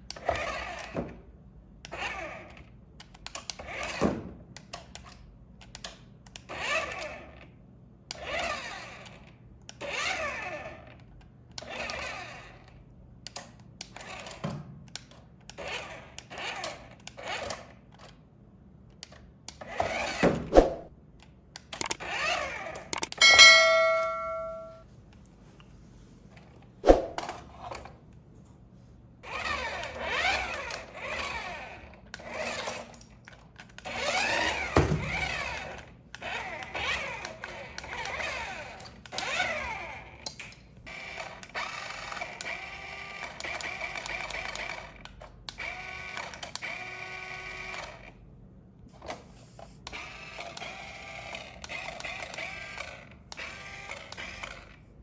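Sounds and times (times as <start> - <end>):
toy car motor whirring: 6.4 - 7.4, 8.1 - 11.0, 11.6 - 12.8, 15.5 - 18.1, 21.8 - 23.1, 29.2 - 33.0, 33.6 - 40.2, 40.9 - 48.2, 49.1 - 54.8
sharp click: 21.8 - 22.0, 23.0 - 24.8.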